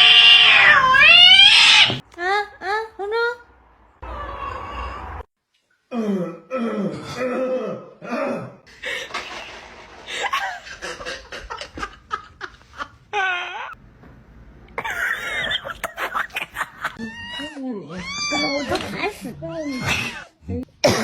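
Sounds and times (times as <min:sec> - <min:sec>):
people laughing: 0:10.1 - 0:13.0, 0:14.8 - 0:17.0.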